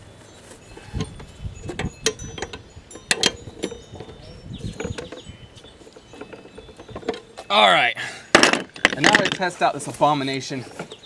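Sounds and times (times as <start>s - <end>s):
metallic clicks and clinks of tools: 0.7s - 7.5s.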